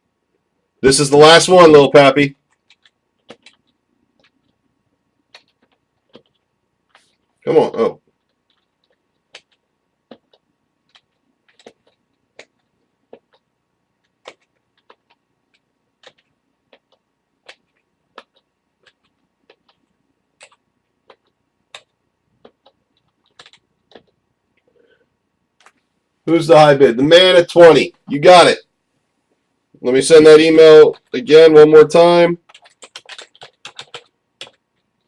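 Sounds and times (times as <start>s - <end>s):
computer keys or mouse clicking: 2.5s - 4.6s, 5.3s - 7.2s, 8.2s - 24.7s, 32.5s - 34.9s.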